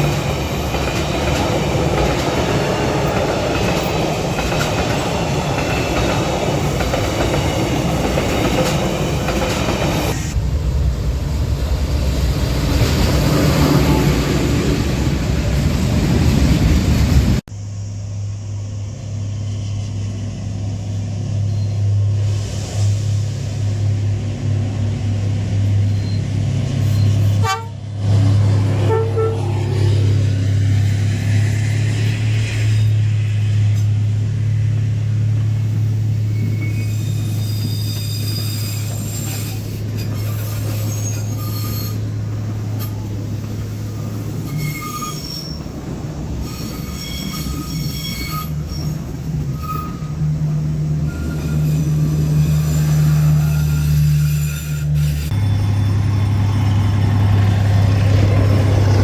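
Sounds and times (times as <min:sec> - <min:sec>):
diesel train engine drone: 0:00.0 - 0:59.0
train wheel squeal: 0:21.2 - 0:22.9, 0:25.7 - 0:27.6, 0:35.8 - 0:57.0.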